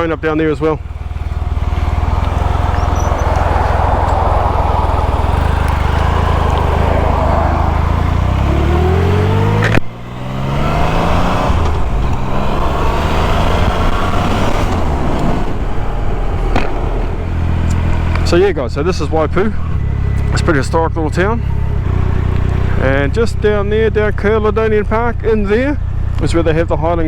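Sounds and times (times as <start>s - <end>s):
motorcycle engine accelerating: 0.0s - 27.0s
wind noise: 1.2s - 9.6s, 10.6s - 18.3s.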